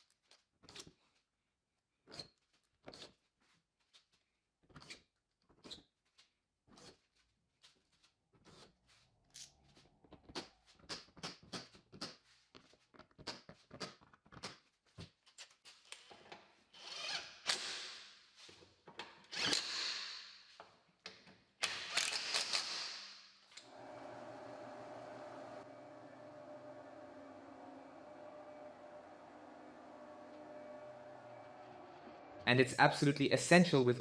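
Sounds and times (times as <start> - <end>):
sharp clicks and ratcheting: 21.6 - 22.9
steady mechanical hum: 23.7 - 32.7.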